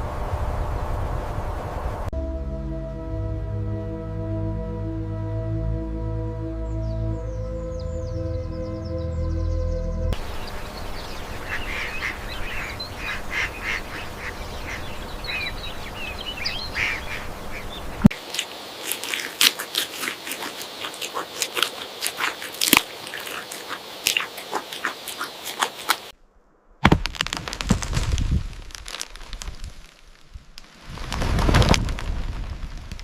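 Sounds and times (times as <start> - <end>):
animal or bird calls: 10.3 - 18.1
sharp crackling clicks: 18.0 - 26.1, 26.8 - 33.0.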